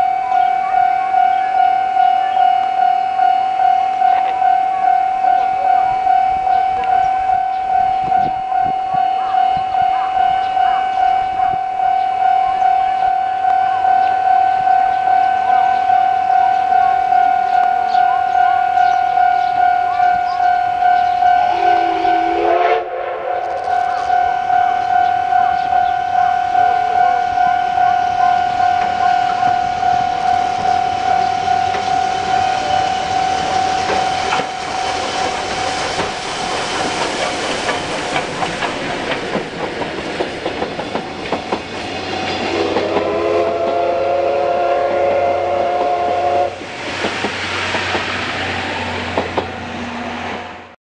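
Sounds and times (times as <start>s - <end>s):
level crossing bell ringing: 0.0s - 22.3s, 23.7s - 35.0s
train wheels clattering over joints: 33.0s - 43.8s, 46.6s - 48.4s.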